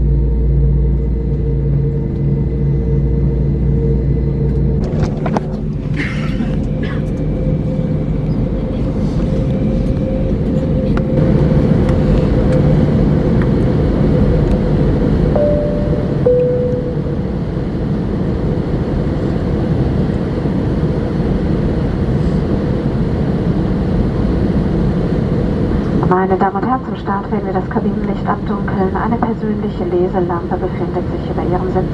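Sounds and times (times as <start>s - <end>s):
aircraft cabin engine rumble: 0.0s - 31.9s
faint steady whine: 6.5s - 19.6s
two-note cabin chime: 15.3s - 17.3s.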